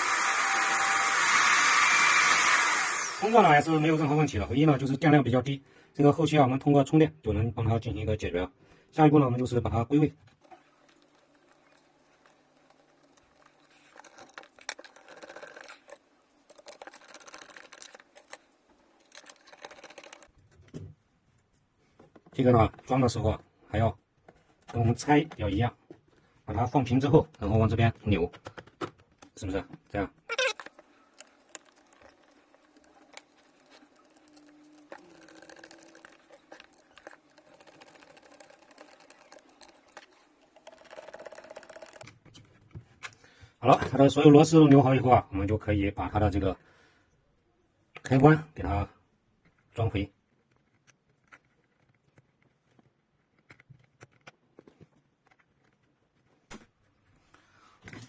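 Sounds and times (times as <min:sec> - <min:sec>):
screwdriver clicking and scraping: 0:50.3 - 0:56.3.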